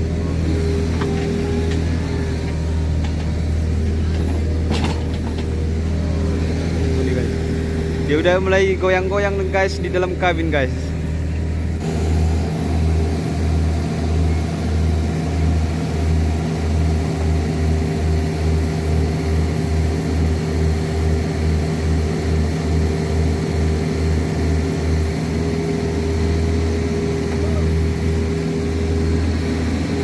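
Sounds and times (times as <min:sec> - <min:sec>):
excavator diesel engine throbbing: 0:00.0 - 0:30.0.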